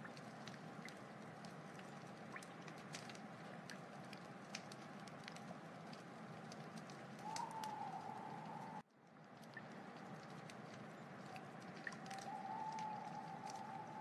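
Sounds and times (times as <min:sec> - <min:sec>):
wood fire crackling: 0:00.0 - 0:14.0
wavering whistle: 0:07.2 - 0:08.8, 0:12.1 - 0:14.0.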